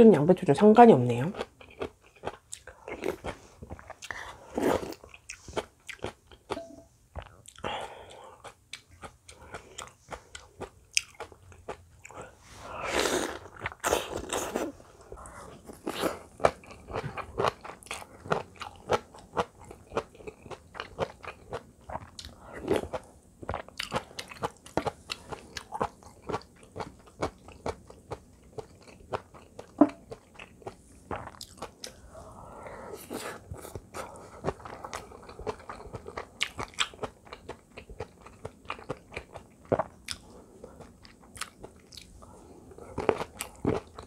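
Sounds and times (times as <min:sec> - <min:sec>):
wet chewing and crunching: 0:01.3 - 0:12.3, 0:13.2 - 0:32.0, 0:33.5 - 0:44.0.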